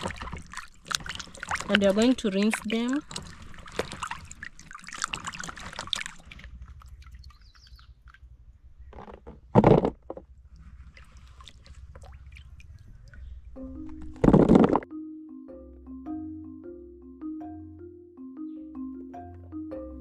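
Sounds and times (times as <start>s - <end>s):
water sloshing and splashing: 0.0s - 14.8s.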